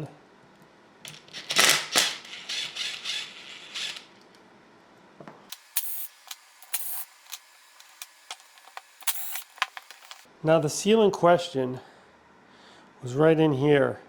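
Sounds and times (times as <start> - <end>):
scraping and rustling of parts: 5.8 - 10.3.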